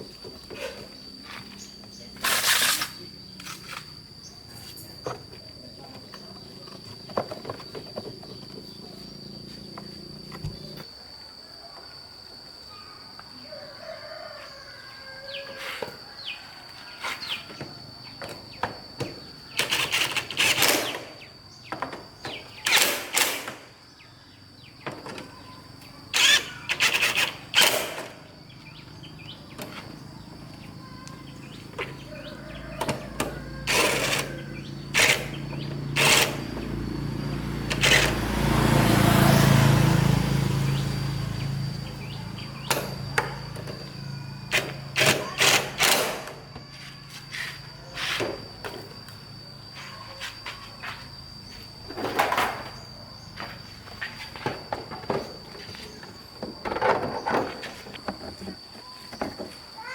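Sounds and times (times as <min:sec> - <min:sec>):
engine running: 0:26.2 - 0:45.1.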